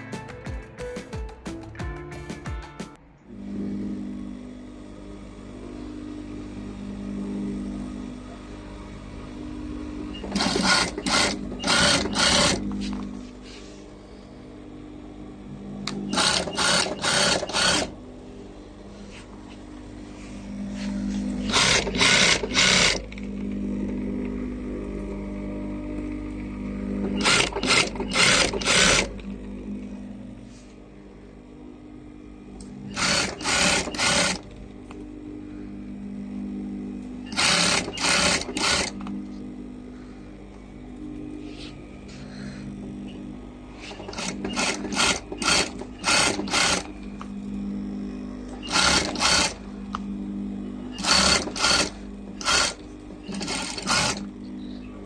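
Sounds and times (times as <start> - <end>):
sewing machine motor hum: 3.3 - 55.0
sewing machine stitching: 10.1 - 13.0, 15.8 - 18.0, 21.3 - 24.0, 27.0 - 29.3, 32.9 - 34.5, 37.2 - 39.1, 43.8 - 46.9, 48.5 - 49.6, 50.9 - 54.4.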